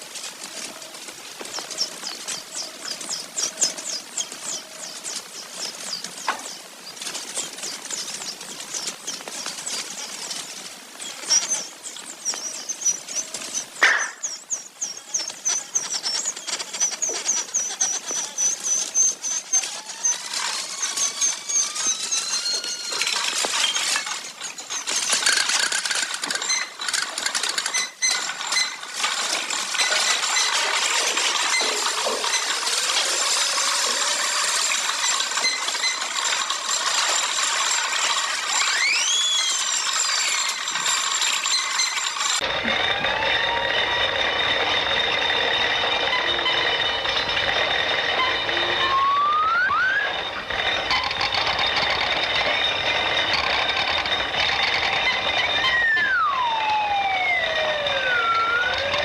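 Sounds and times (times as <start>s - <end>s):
small birds chirping trills: 0.4s - 29.0s
rising whistled bird notes: 38.6s - 40.4s, 48.1s - 50.4s, 55.0s - 59.0s.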